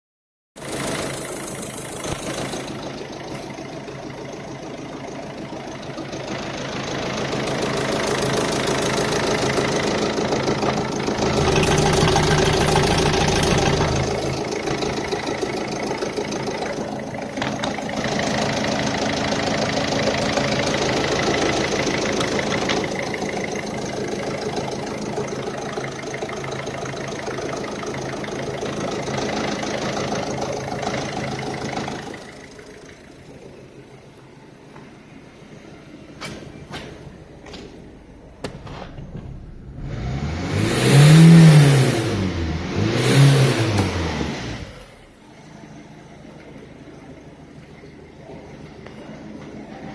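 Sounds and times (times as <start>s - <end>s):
diesel engine idling: 0.6s - 34.7s.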